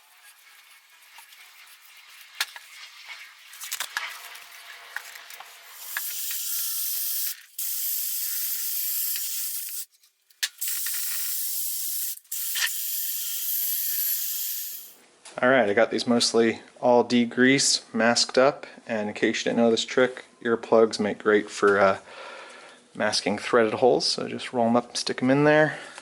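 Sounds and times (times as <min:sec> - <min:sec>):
metal parts clicking and scraping: 0:03.4 - 0:04.4, 0:05.0 - 0:15.0
pressurized spray hissing: 0:05.8 - 0:09.9, 0:10.6 - 0:15.0.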